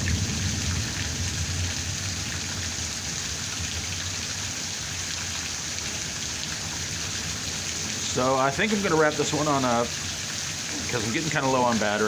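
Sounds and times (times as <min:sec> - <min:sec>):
low thunder rumble: 0:00.0 - 0:04.0
steady rain: 0:00.0 - 0:12.0.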